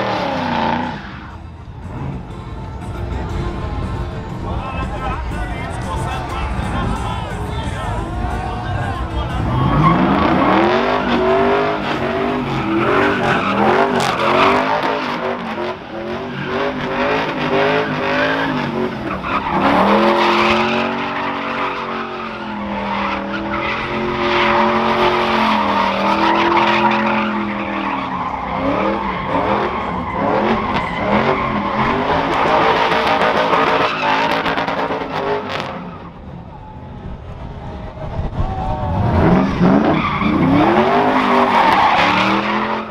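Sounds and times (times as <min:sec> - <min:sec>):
vehicle engine revving: 0:00.0 - 0:04.2, 0:04.8 - 0:36.4, 0:37.4 - 0:42.9
tyre squeal: 0:09.5 - 0:36.0.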